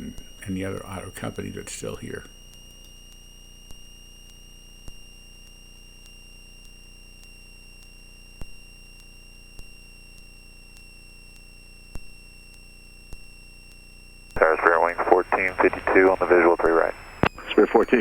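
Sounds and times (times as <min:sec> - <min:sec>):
faint clicks: 0:13.7 - 0:17.7.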